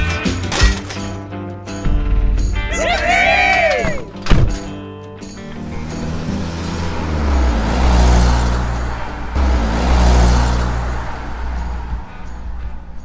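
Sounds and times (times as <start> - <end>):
background music: 0.0 - 13.0
vehicle engines passing by: 2.7 - 13.0.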